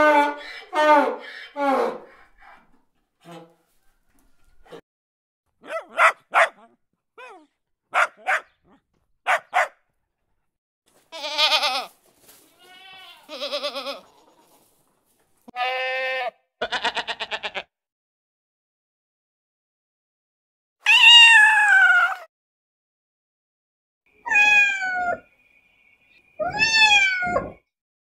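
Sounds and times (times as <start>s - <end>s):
goat bleating: 11.0s - 14.6s, 15.5s - 17.7s.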